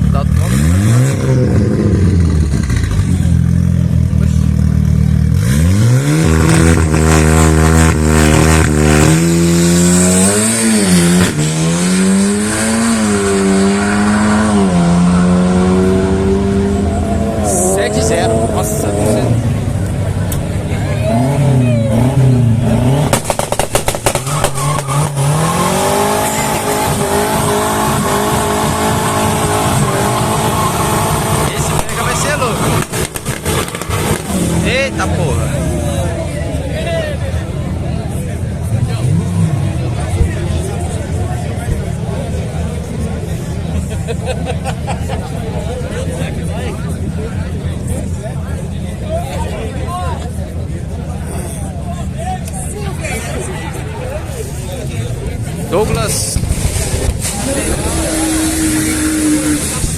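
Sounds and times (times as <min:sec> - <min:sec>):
drag racing engines revving: 0:00.0 - 0:59.9
sharp exhaust pops: 0:23.0 - 0:25.2, 0:31.7 - 0:34.6, 0:56.0 - 0:59.9.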